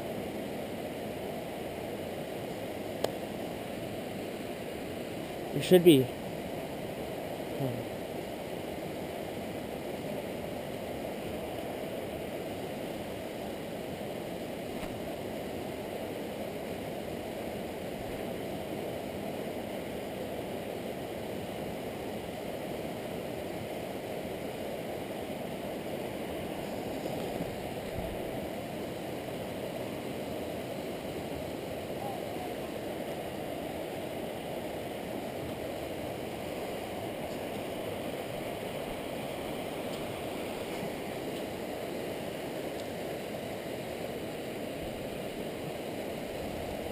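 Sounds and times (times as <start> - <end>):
river water rushing over rapids: 0.0 - 46.9.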